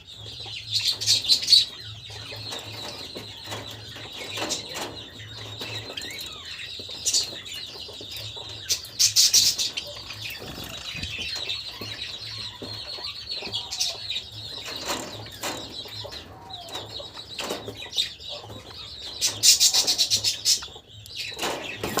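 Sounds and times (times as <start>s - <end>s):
sparrows chirping: 0.0s - 22.0s
rapid wing flapping: 10.3s - 11.2s.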